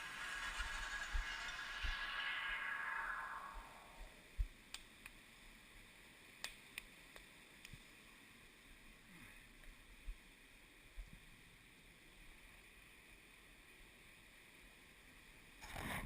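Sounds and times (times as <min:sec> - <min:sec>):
faint background hiss: 0:00.0 - 0:16.0
faint clicks: 0:06.4 - 0:07.8.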